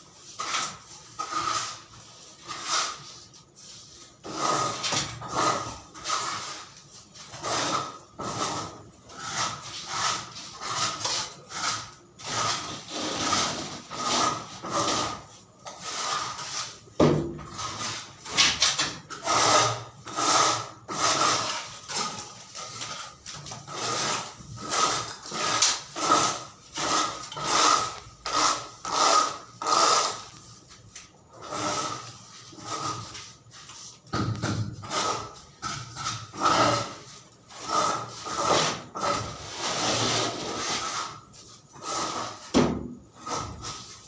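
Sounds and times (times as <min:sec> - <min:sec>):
hand tool stroking wood: 0:19.1 - 0:30.4.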